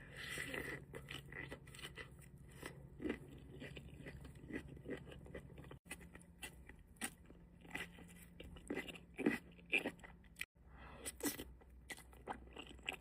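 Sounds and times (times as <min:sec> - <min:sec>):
crunchy food chewing: 0:00.0 - 0:10.5, 0:11.1 - 0:13.0.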